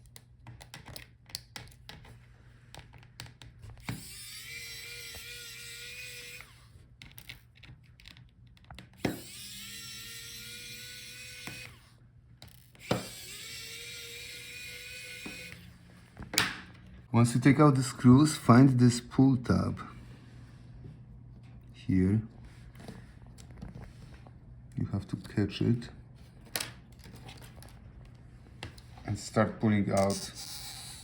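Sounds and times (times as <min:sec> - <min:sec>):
electric screwdriver whirring: 0:03.8 - 0:06.8, 0:09.0 - 0:15.8, 0:30.4 - 0:31.0
small clicks and taps of screws: 0:07.0 - 0:09.1.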